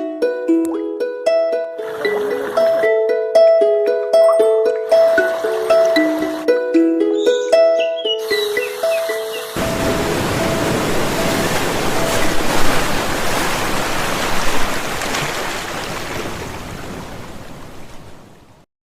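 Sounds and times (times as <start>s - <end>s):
rushing water roar: 1.8s - 2.9s, 4.8s - 6.5s, 8.2s - 18.6s.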